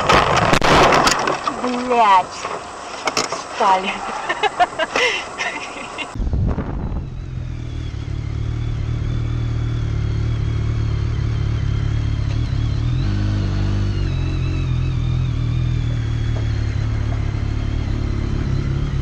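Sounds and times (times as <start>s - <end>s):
thin high whine: 1.4s - 9.0s
motorcycle engine running: 5.9s - 19.0s.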